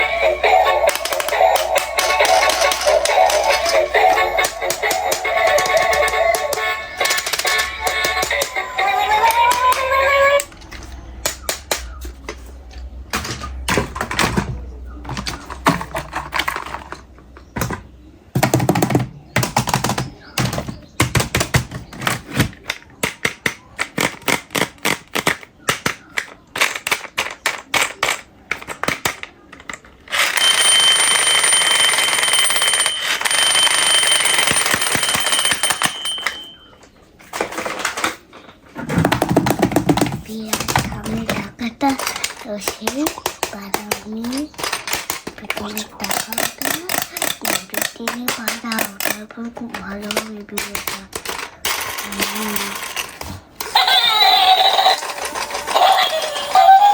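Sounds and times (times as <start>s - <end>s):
plastic toys rattling: 0.0s - 12.0s, 13.1s - 36.6s, 37.2s - 56.9s
battery toy whirring: 53.7s - 56.9s.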